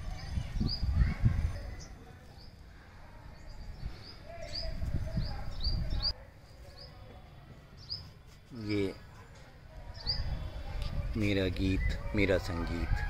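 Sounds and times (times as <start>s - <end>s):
small birds chirping: 0.0s - 12.5s.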